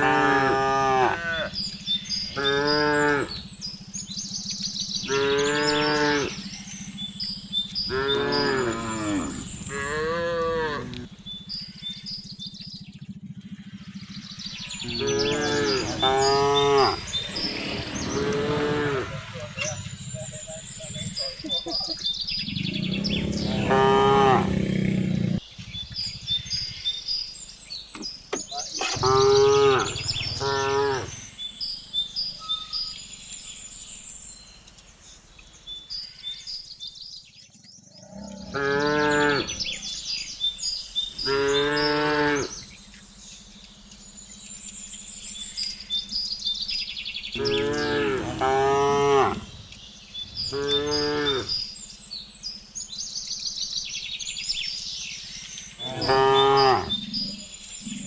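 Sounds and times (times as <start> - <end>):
cattle mooing: 0.0 - 1.7, 2.3 - 3.5, 5.0 - 6.5, 7.9 - 11.1, 14.7 - 20.4, 22.6 - 25.4, 29.0 - 31.2, 38.0 - 39.8, 41.2 - 42.6, 47.4 - 49.5, 50.5 - 51.6, 55.8 - 58.0
faint high bird chirps: 0.8 - 58.0.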